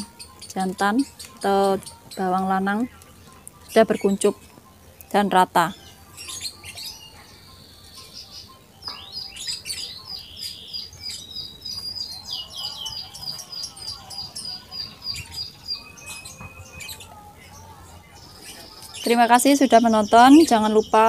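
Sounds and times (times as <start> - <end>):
small birds chirping: 0.0 - 21.0
bird trills: 5.5 - 21.0.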